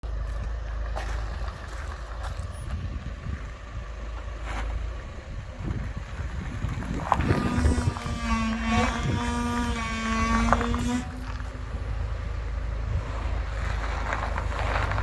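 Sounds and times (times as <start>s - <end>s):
car engine rumble: 0.0s - 15.0s.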